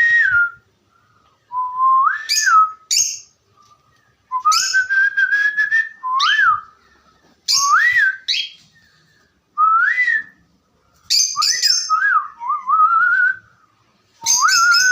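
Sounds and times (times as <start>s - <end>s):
cockatiel whistling: 11.1s - 13.4s, 14.2s - 14.9s.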